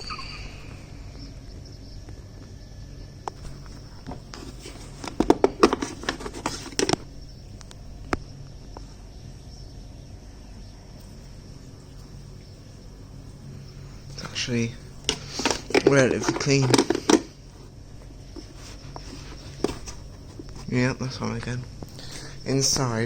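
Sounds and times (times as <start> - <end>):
steady low hum: 0.0 - 23.0
sharp clicks and rattles: 4.9 - 8.2, 15.0 - 17.3.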